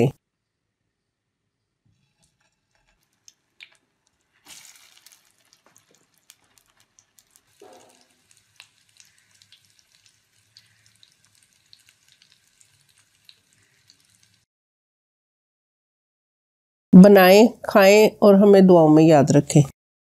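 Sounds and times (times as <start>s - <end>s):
patties frying in oil: 2.0s - 14.5s.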